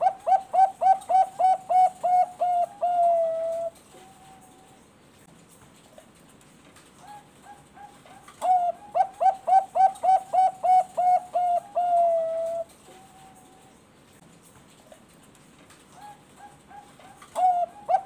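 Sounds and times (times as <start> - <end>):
dove cooing: 0.0 - 4.8, 7.0 - 13.7, 15.9 - 18.0.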